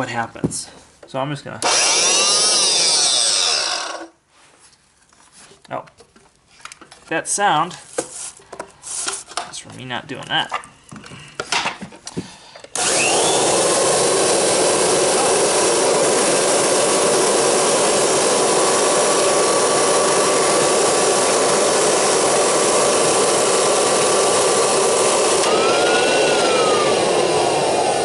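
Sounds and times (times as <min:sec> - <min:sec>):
vacuum motor whining: 0:01.6 - 0:04.1, 0:12.7 - 0:28.0.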